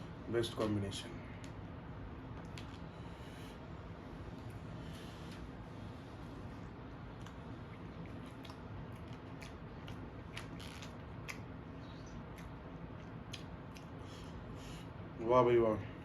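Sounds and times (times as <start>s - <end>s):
steady low hum: 0.0s - 16.0s
wet mouth clicks and smacks: 7.2s - 14.0s
person chewing food: 7.2s - 14.2s.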